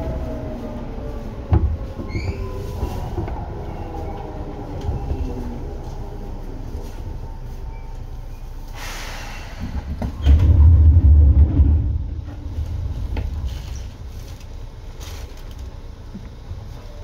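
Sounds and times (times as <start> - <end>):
heavy low rumble: 0.0 - 17.0
train running rumble: 0.0 - 17.0
brief hiss: 8.7 - 9.8.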